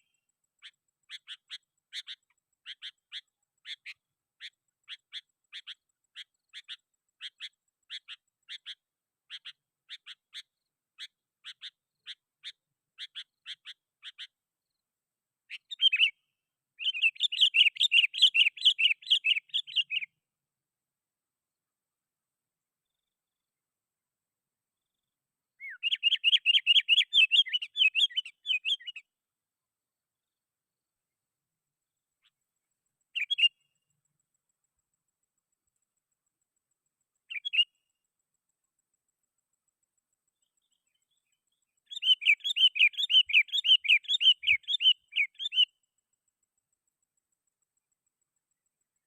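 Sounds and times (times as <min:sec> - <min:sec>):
bird chattering song: 0:00.0 - 0:14.4, 0:15.5 - 0:20.2, 0:24.8 - 0:29.1, 0:33.0 - 0:34.2, 0:37.2 - 0:38.1, 0:40.2 - 0:45.8.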